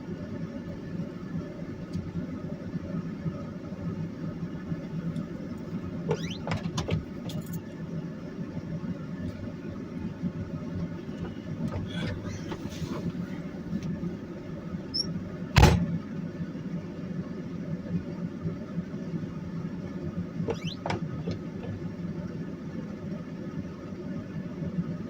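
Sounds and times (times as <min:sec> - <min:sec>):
car engine and road noise: 0:00.0 - 0:25.0
short squeaks: 0:06.1 - 0:06.7, 0:14.9 - 0:15.2, 0:20.5 - 0:21.1.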